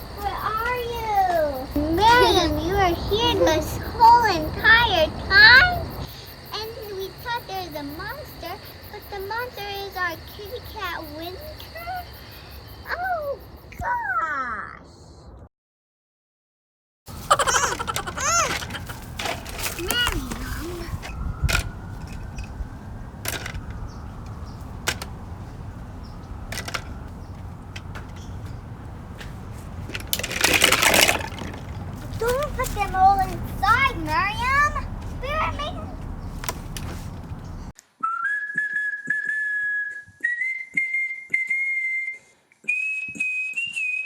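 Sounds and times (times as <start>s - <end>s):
soft irregular knocks: 17.3s - 37.7s
person whistling a slow tune: 38.0s - 44.0s.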